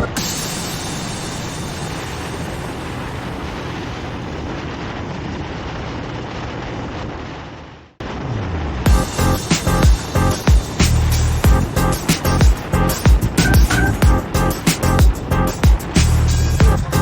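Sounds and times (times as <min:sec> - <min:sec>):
wind rush: 0:00.0 - 0:17.0
motorcycle engine rumbling: 0:08.0 - 0:17.0.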